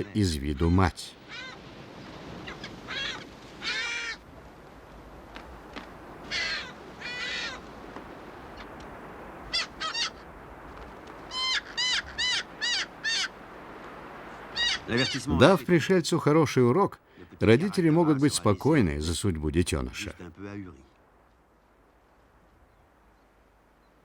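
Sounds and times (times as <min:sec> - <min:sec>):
birds giving harsh calls: 0:00.0 - 0:01.7, 0:02.4 - 0:04.2, 0:06.2 - 0:07.8, 0:08.5 - 0:10.4, 0:11.2 - 0:13.6, 0:14.2 - 0:15.7.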